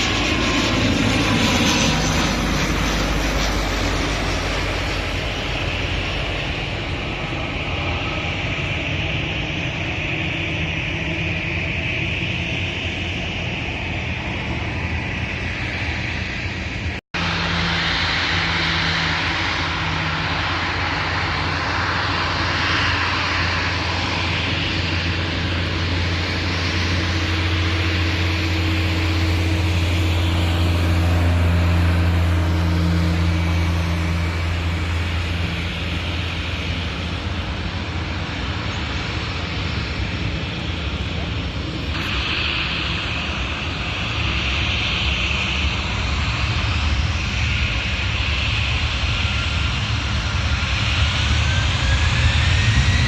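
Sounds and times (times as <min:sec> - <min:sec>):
aircraft engines passing: 0:00.0 - 0:53.0.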